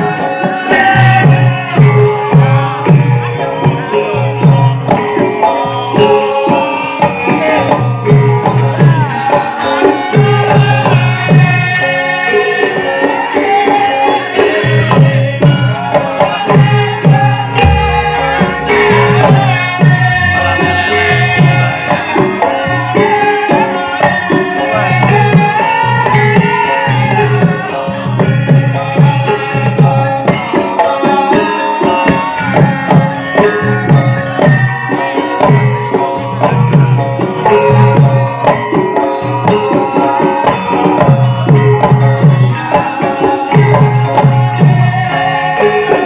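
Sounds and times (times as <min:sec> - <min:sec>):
gamelan ensemble playing: 0:00.0 - 0:46.0
hand drum pattern: 0:00.0 - 0:46.0
bending melodic line: 0:17.3 - 0:21.8.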